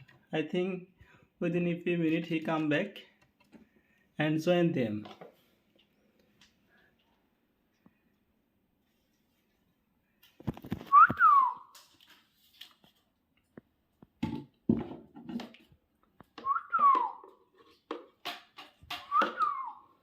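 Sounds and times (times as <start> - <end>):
rising and falling whistles: 10.9 - 11.7, 16.4 - 17.2, 19.1 - 20.0.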